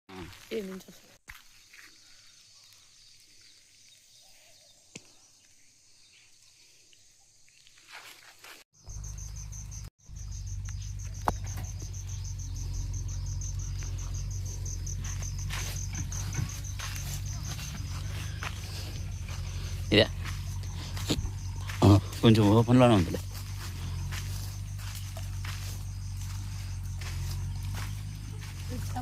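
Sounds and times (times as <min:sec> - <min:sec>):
insects chirping: 0:00.1 - 0:29.0
steady low rumble: 0:10.2 - 0:29.0.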